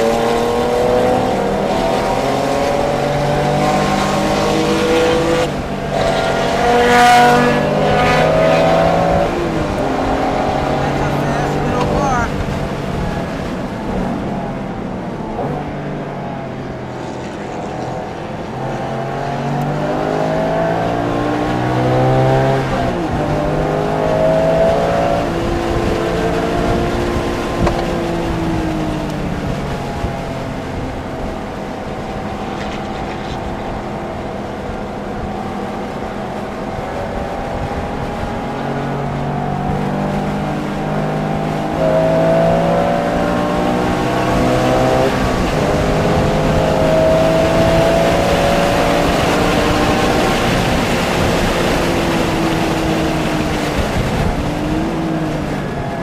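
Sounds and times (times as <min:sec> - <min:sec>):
race car engine revving through gears: 0:00.0 - 0:56.0.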